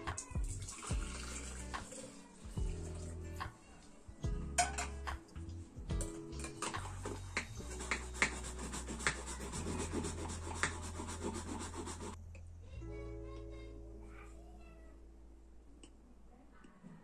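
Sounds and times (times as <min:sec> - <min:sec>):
soft music with bass line: 0:00.0 - 0:15.2
rubbing and scratching: 0:06.7 - 0:12.2.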